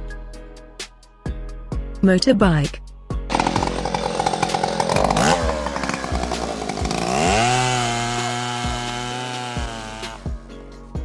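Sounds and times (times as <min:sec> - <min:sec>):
motorcycle engine revving: 0:03.3 - 0:10.5.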